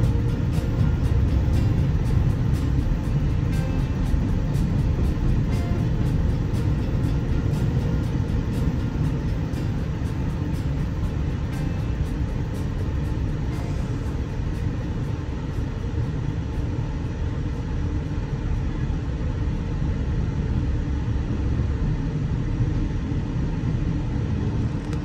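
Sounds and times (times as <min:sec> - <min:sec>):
freight train wheels rumbling: 0:00.0 - 0:22.8.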